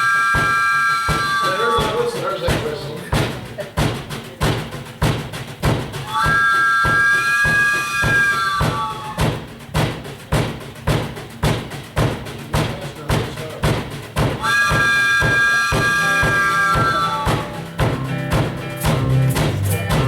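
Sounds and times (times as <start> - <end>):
chord-like train whistle: 0.0 - 2.9, 6.0 - 9.4, 14.4 - 20.0
band chugging beat: 0.0 - 20.0.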